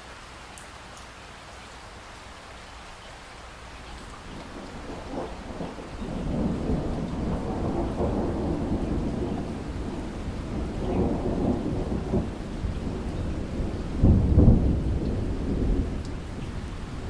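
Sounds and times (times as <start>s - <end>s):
rain falling: 0.0s - 17.0s
thunder rumbling: 4.0s - 17.0s.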